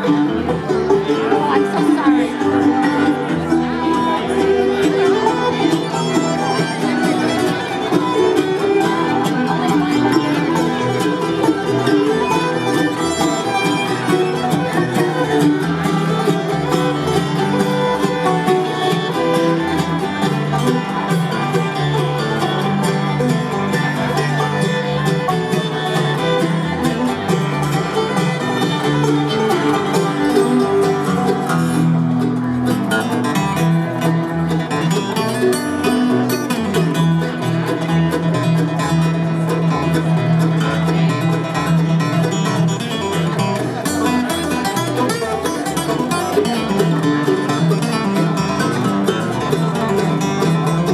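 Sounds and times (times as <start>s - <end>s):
banjo: 0.0s - 50.9s
fiddle: 0.0s - 50.9s
guitar: 0.0s - 50.9s.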